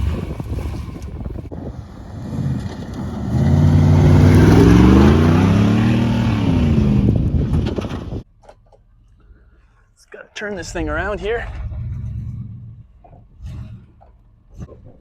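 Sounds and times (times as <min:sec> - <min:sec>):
truck engine accelerating: 0:00.0 - 0:08.2, 0:10.6 - 0:15.0.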